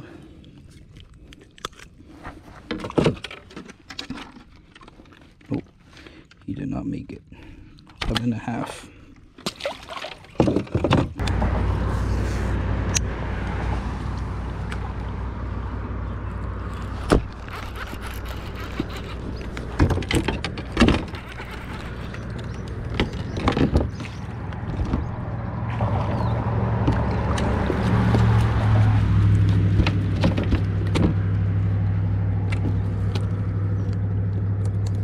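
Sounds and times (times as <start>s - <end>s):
boat motor running: 11.2s - 35.0s.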